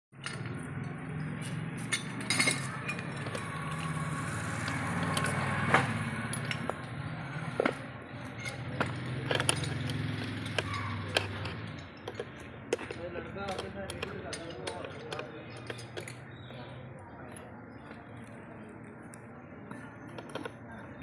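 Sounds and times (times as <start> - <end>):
small hard objects clinking: 1.9 - 5.5, 7.5 - 16.5.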